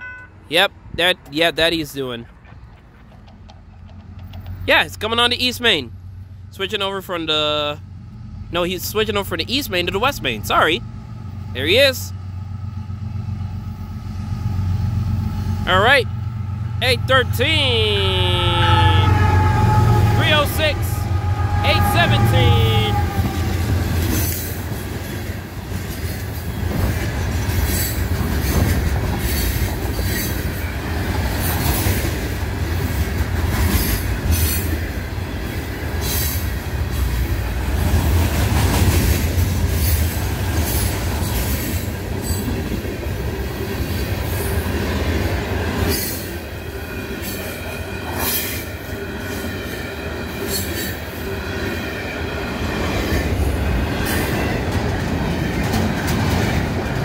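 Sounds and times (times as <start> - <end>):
wheels clacking over rail joints: 2.2 - 5.2, 23.0 - 46.4, 52.8 - 57.0
steel wheels rumbling on rail: 2.2 - 57.0.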